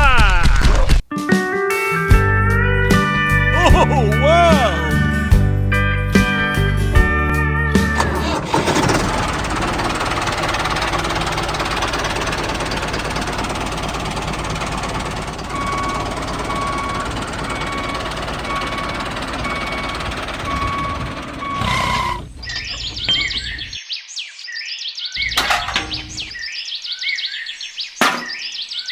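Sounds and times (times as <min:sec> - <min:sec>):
rattly tractor engine: 0:07.7 - 0:23.8, 0:25.2 - 0:26.4.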